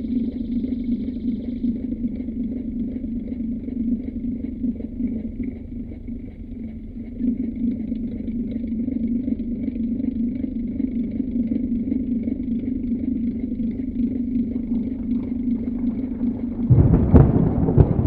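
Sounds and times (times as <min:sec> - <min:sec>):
electric fan humming: 0:13.5 - 0:18.0.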